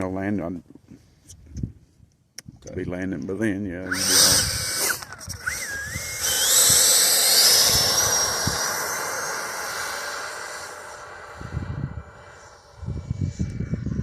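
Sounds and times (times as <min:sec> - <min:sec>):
model jet fan whooshing whine: 0:03.8 - 0:14.0.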